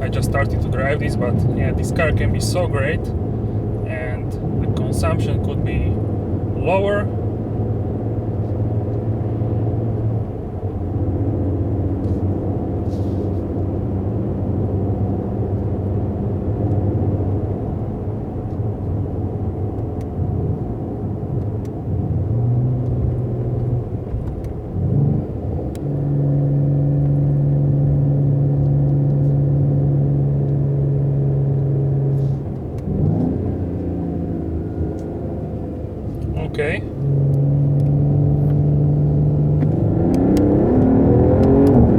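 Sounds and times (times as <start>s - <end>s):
car engine and exhaust driving: 0.0s - 41.9s.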